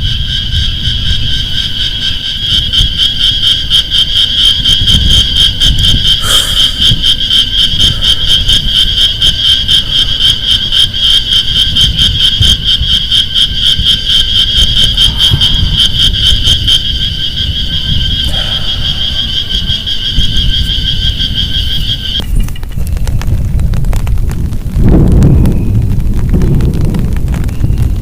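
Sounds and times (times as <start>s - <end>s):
low rumble: 0.0s - 28.0s
high pulsing animal trill: 2.1s - 22.2s.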